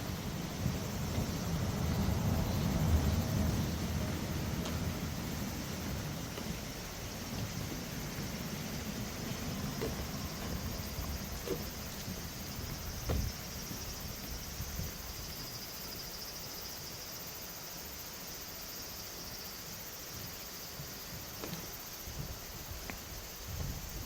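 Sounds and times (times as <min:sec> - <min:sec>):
high-pitched insect chorus: 0:00.0 - 0:24.0
thump: 0:13.0 - 0:13.4.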